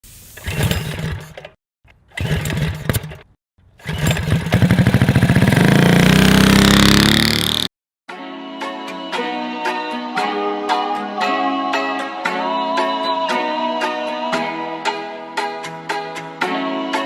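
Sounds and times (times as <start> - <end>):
small motorcycle engine revving: 0.4 - 7.7.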